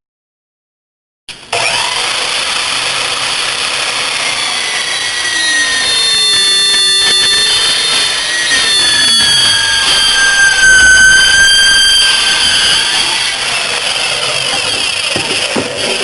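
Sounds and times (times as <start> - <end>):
miter saw cutting metal: 1.3 - 16.0
high ringing tones from blade: 4.7 - 15.0.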